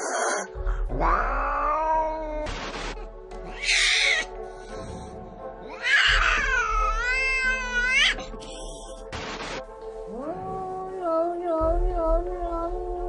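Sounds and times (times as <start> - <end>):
cat yowling: 0.0 - 2.5, 3.4 - 4.3, 5.7 - 8.2
background music: 0.0 - 13.0.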